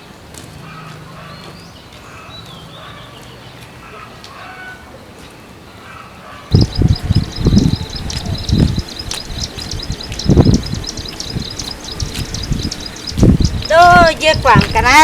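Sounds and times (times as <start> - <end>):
faint bird chirps: 6.5 - 15.0.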